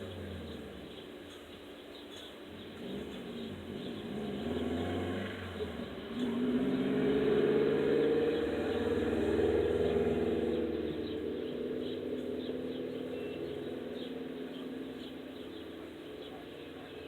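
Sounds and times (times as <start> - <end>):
motor vehicle passing: 2.5 - 17.0.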